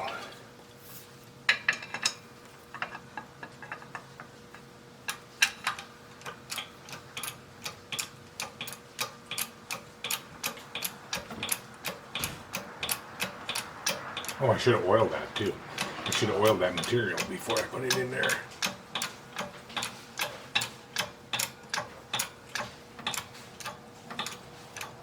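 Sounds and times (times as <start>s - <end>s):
sharp metallic clicks: 5.1s - 25.0s.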